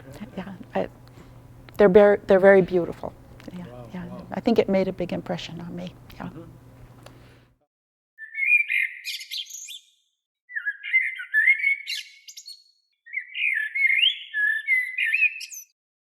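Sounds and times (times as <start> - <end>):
songbird twittering and warbling: 8.2 - 15.7.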